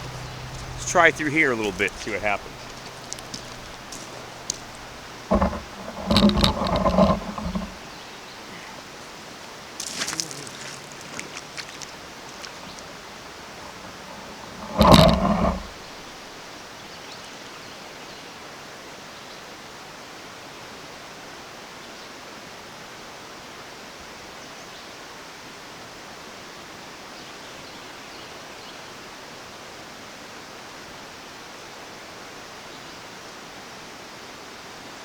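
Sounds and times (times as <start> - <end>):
stream rushing: 0.0 - 7.9.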